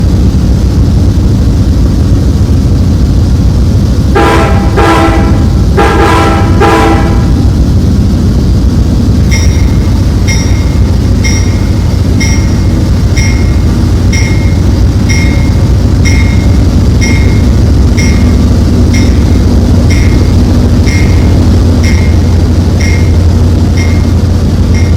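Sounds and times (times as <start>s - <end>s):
train rumbling: 0.0s - 24.9s
multi-tone train horn: 4.1s - 7.5s
bell ringing: 9.3s - 24.2s.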